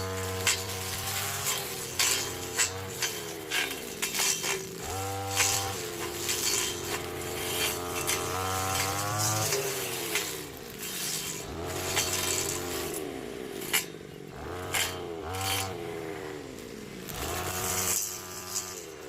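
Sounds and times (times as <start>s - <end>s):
small engine revving: 0.0s - 19.0s.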